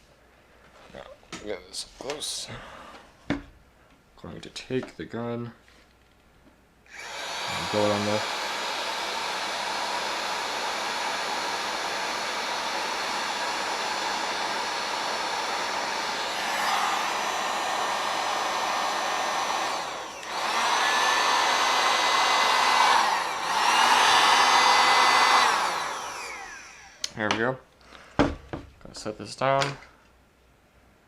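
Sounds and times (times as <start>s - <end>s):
heat gun blowing: 6.9s - 27.1s.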